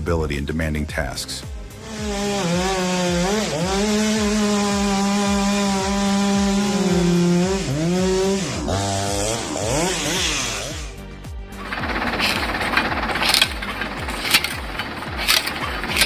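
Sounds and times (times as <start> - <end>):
chainsaw cutting wood: 1.6 - 11.0, 11.6 - 16.0.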